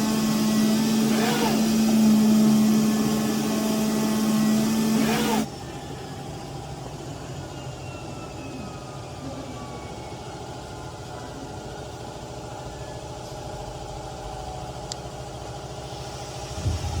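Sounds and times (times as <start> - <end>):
cutting machine humming: 0.0 - 5.6
faint falling whines: 0.0 - 15.2.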